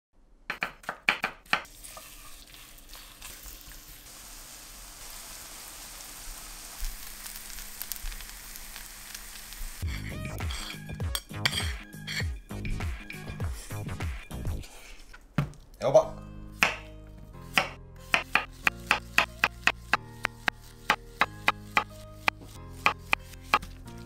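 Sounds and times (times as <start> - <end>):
batter sizzling in hot oil: 1.7 - 11.7
music: 9.8 - 15.0, 15.8 - 24.0.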